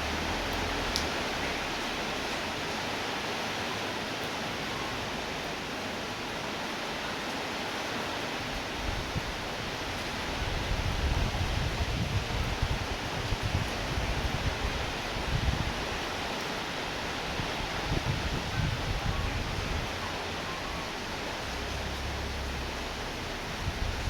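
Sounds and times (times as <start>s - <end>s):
rainfall hiss: 0.0s - 24.0s
wind buffeting microphone: 8.8s - 16.3s, 17.0s - 24.0s.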